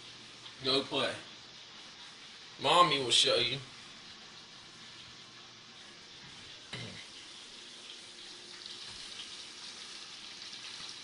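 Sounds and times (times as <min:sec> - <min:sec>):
chicken sizzling in hot oil: 0:06.5 - 0:11.0.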